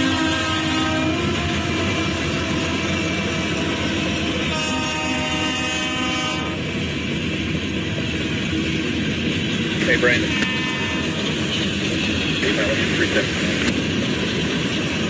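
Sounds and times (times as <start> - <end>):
locomotive air horn blast: 0.0 - 3.0, 4.4 - 6.6, 10.3 - 11.2
freight train wheels rumbling: 0.0 - 15.0.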